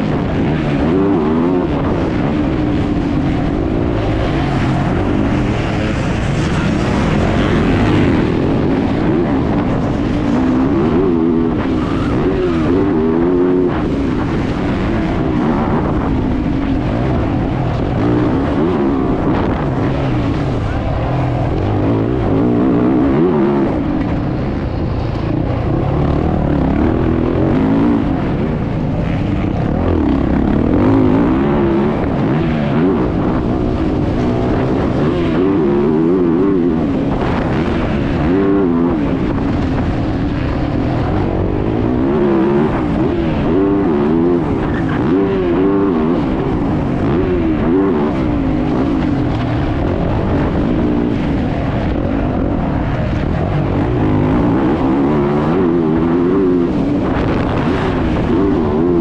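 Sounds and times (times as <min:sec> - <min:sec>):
motocross bike engine revving: 0:00.0 - 0:59.0
wind on microphone: 0:00.0 - 0:59.0.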